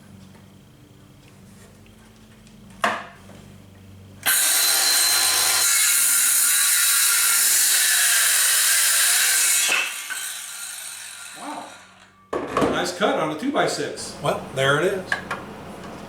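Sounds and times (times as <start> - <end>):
circular saw cutting wood: 4.2 - 12.1.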